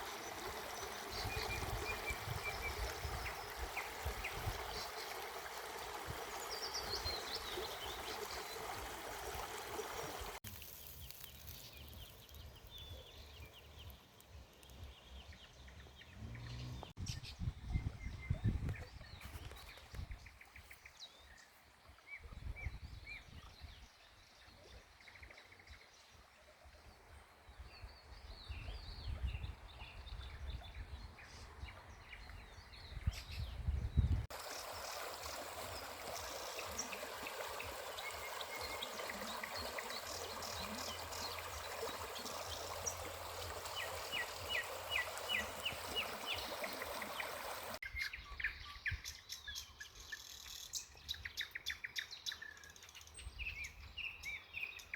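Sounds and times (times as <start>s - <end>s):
river flowing: 0.0s - 12.6s, 34.3s - 47.8s
birdsong: 0.0s - 26.3s, 27.0s - 54.9s.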